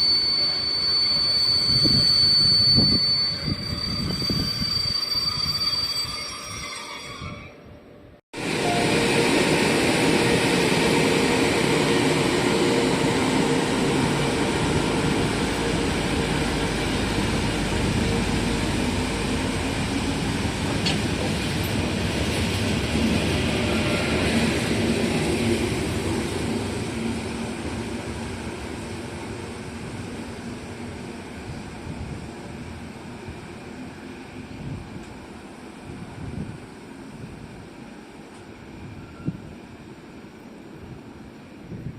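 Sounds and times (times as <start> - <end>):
high ringing tone: 0.0 - 7.8, 8.5 - 9.3
train wheels rushing on rail: 8.4 - 41.9.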